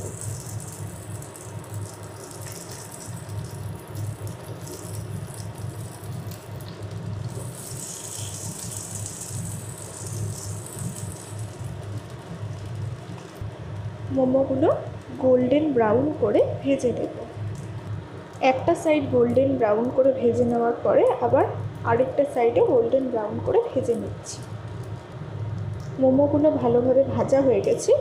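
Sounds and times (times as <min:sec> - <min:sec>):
hot oil sizzling in a pan: 0:00.0 - 0:20.6
steady low hum: 0:00.0 - 0:28.0.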